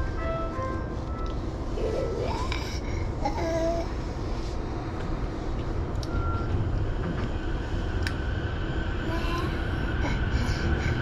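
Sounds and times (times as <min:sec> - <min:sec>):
rising train whine: 0:00.0 - 0:11.0
train low rumble: 0:00.0 - 0:11.0.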